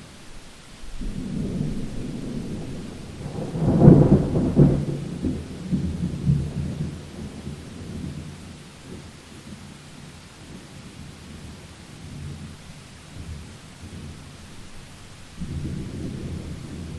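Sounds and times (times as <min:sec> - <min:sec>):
steady rain: 0:00.0 - 0:16.9
thunder rolling: 0:00.9 - 0:09.1, 0:13.2 - 0:16.9.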